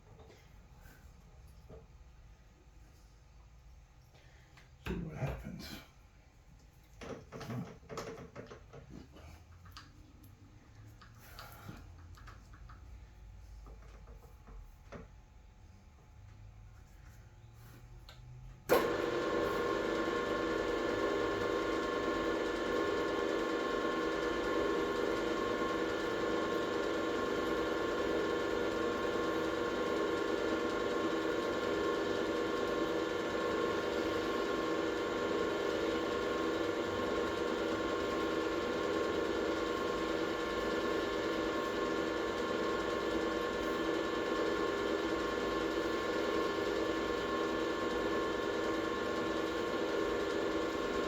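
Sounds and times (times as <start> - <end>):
air compressor running: 18.7 - 51.0.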